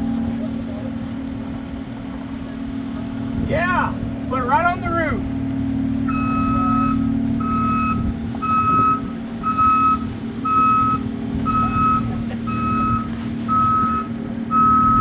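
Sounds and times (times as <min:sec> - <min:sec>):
engine humming: 0:00.0 - 0:15.0
reversing alarm beeping: 0:06.0 - 0:15.0.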